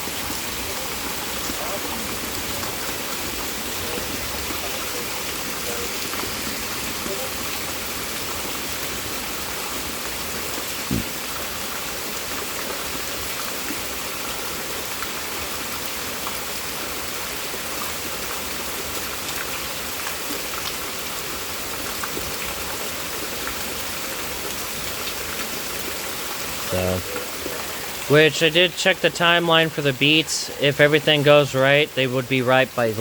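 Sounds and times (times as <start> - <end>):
heavy rain falling: 0.0 - 33.0
low thump: 10.9 - 11.1.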